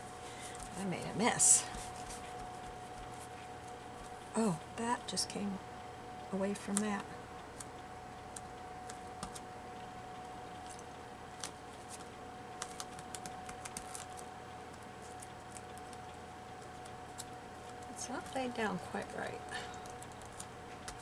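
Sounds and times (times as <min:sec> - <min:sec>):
faint steady hum: 0:00.0 - 0:21.0
paper clicks and taps: 0:11.4 - 0:16.0, 0:19.8 - 0:21.0.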